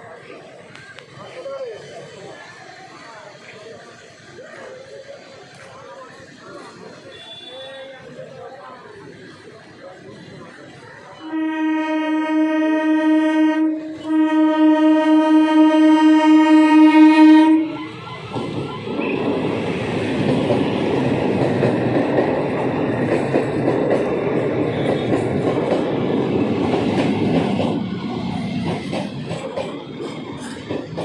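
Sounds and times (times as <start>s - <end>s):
train wheels rumbling on rails: 0.0s - 31.0s
train horn blasts: 11.2s - 18.0s.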